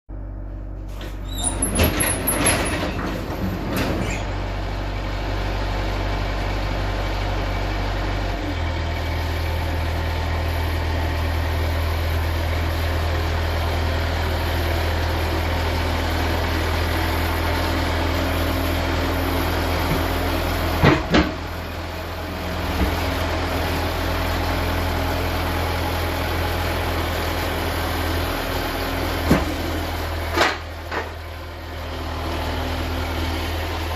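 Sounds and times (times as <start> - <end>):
low mechanical hum: 0.1 - 33.9.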